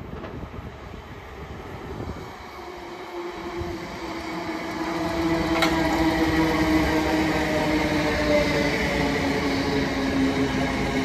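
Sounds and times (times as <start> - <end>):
electric train motors whining: 3.1 - 11.0.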